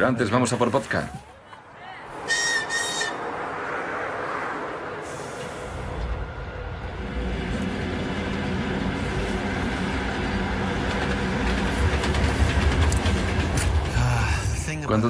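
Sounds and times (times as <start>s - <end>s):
train rumbling: 2.0s - 15.0s.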